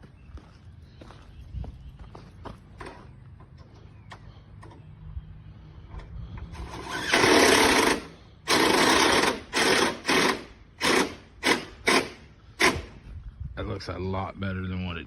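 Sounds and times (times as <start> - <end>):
handheld power tool running: 6.6 - 13.0.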